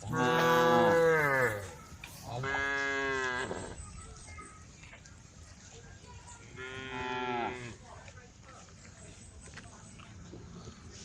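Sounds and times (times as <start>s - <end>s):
cow mooing: 0.0s - 1.7s.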